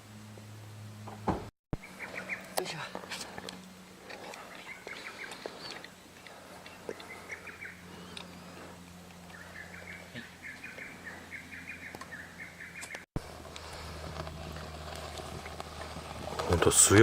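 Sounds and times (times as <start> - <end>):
bonfire crackling: 12.8 - 17.0.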